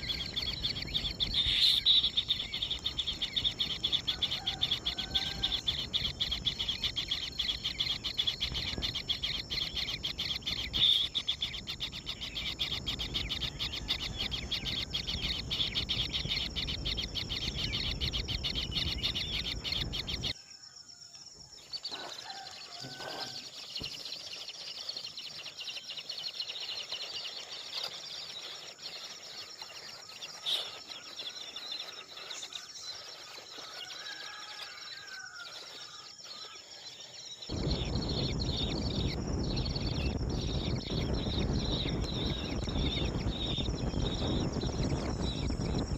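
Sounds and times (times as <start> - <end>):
bird chirps: 0.0 - 45.9
insects trilling: 0.0 - 45.9.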